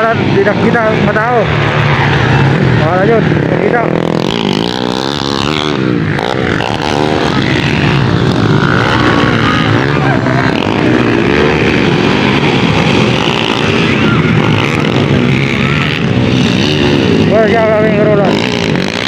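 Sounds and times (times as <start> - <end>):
motocross bikes revving: 0.0 - 19.0.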